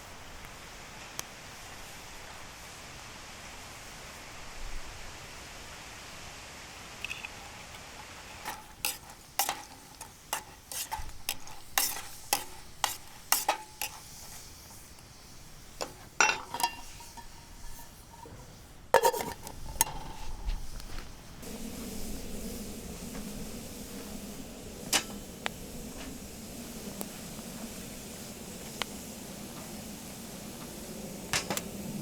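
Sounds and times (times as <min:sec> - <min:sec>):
faint sizzle: 0:00.0 - 0:32.0
utensil tapping and scraping pan: 0:07.0 - 0:20.9.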